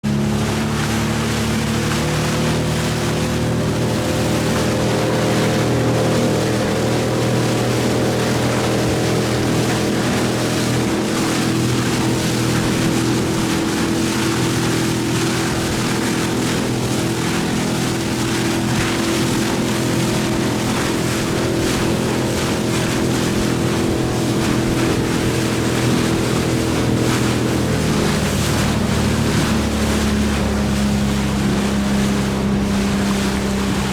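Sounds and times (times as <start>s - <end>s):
motorboat engine running: 0.0s - 33.9s
water noise: 0.0s - 33.9s
wind: 0.0s - 33.9s.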